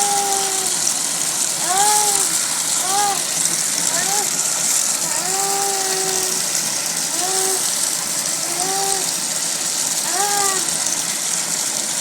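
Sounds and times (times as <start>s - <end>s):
steady hiss: 0.0s - 12.0s
person wailing: 1.6s - 3.3s, 3.9s - 4.3s.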